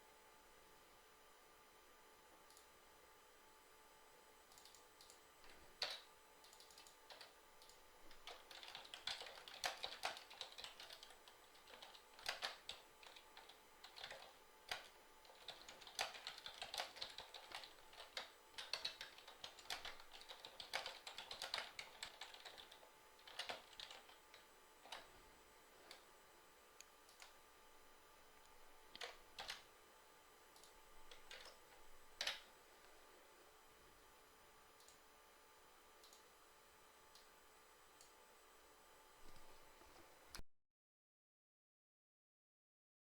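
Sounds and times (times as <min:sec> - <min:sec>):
computer keyboard typing: 0:04.5 - 0:25.2, 0:27.0 - 0:27.4, 0:28.9 - 0:29.7, 0:30.6 - 0:32.5, 0:34.8 - 0:35.0, 0:36.0 - 0:36.3.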